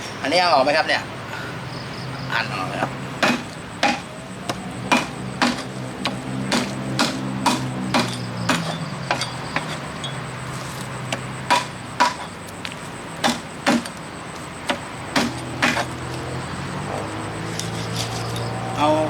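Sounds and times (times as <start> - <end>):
knife chopping on cutting board: 3.2 - 9.8, 13.2 - 14.0, 14.7 - 15.9.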